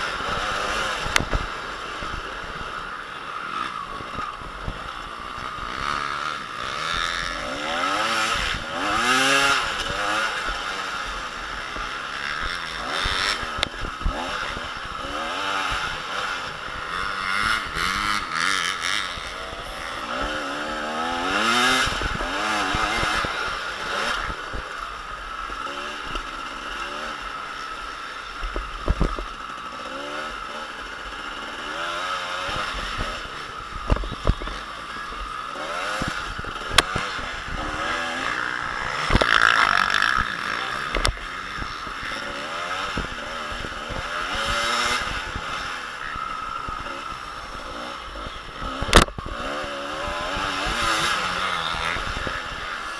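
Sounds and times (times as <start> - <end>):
motocross bike engines revving: 0.0 - 52.9.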